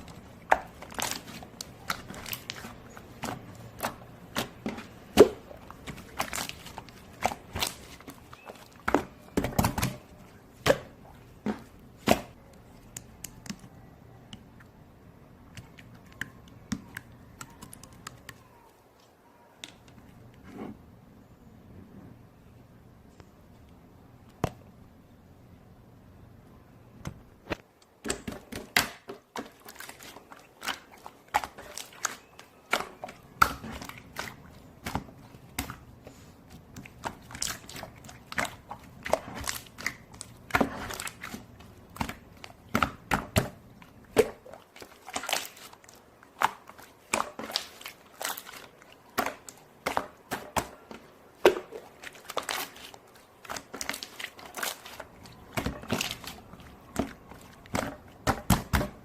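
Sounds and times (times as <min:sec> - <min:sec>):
crinkling and crunching: 0:00.0 - 0:13.7, 0:29.2 - 0:59.0.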